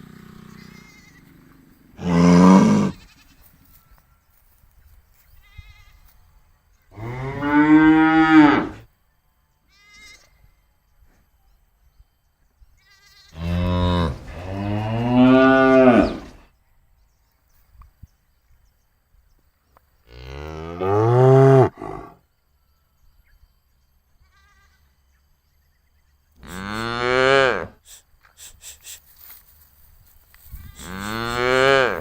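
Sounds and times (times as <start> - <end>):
cattle mooing: 2.0 - 3.1, 7.0 - 8.8, 13.3 - 16.4, 20.2 - 22.2, 30.8 - 32.0.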